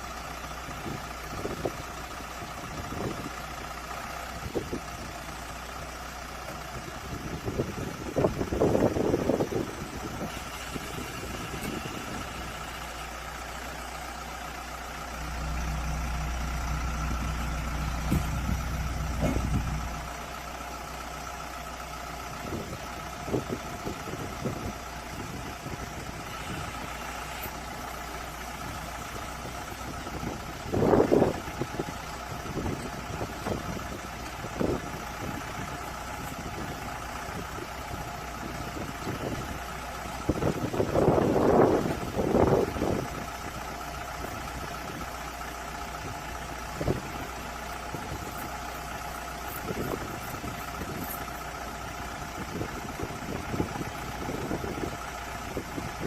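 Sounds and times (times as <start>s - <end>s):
bus engine idling: 0.0s - 56.0s
deeper low hum: 15.2s - 20.2s.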